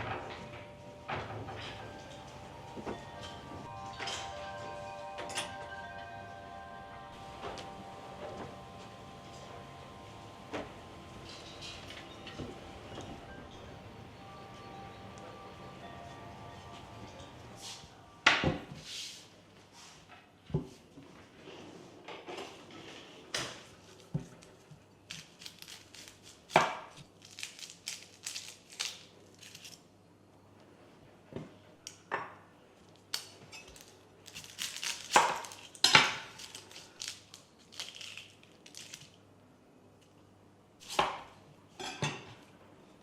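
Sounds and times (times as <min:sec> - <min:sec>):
dishes and utensils clinking: 0:00.0 - 0:18.5, 0:41.7 - 0:42.5.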